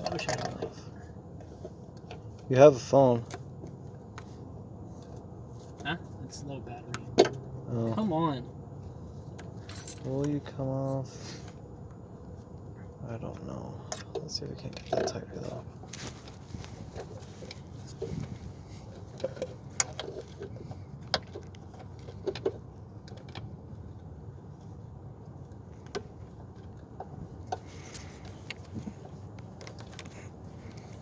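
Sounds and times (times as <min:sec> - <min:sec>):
steady low hum: 0:00.0 - 0:31.0
hand tools clinking on metal: 0:09.7 - 0:10.1.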